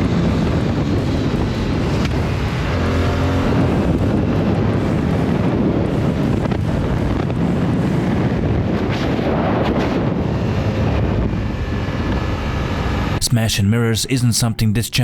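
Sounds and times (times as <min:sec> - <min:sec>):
wind rush over microphone: 0:03.5 - 0:12.4.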